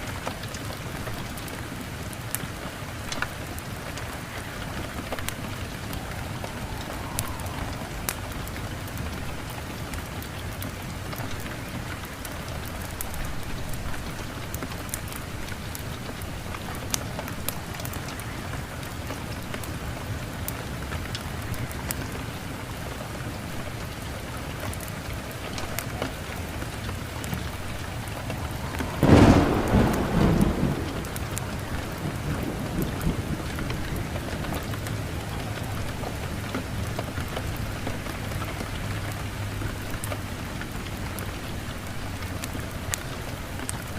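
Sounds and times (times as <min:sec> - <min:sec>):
steady rain falling: 0:00.0 - 0:43.9
thunder clap rumbling: 0:03.3 - 0:10.6, 0:25.6 - 0:38.0.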